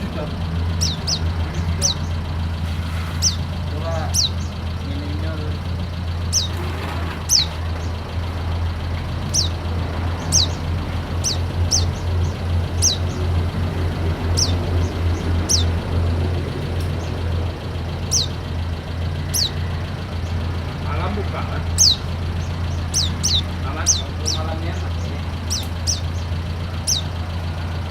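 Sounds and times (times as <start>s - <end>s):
steady low hum: 0.0s - 27.9s
high thin bird chirps: 0.6s - 5.2s, 6.1s - 8.0s, 9.1s - 13.4s, 14.2s - 16.0s, 16.7s - 20.4s, 21.7s - 27.2s.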